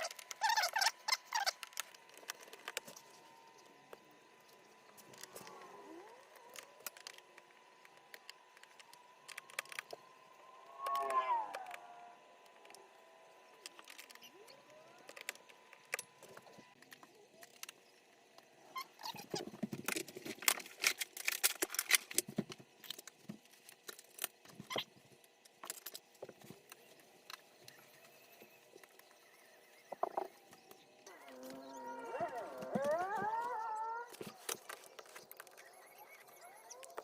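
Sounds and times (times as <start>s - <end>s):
plastic and metal parts rattling: 19.0s - 24.8s.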